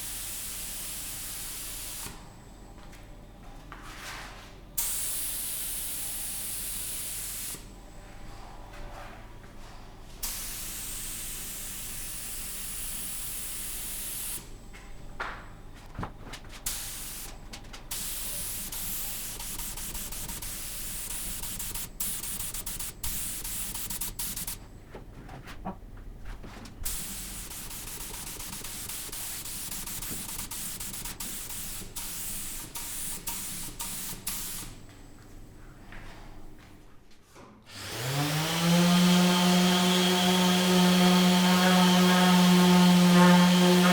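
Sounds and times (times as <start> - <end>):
spray hissing: 16.7 - 24.6, 26.8 - 34.7.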